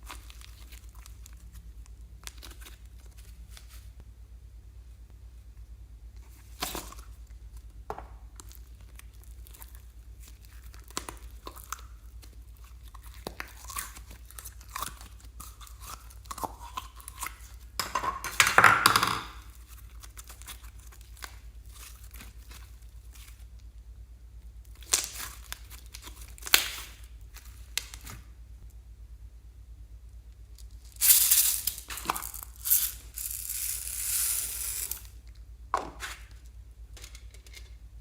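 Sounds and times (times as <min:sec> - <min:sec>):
slime squishing: 0:00.0 - 0:03.8, 0:06.2 - 0:17.8.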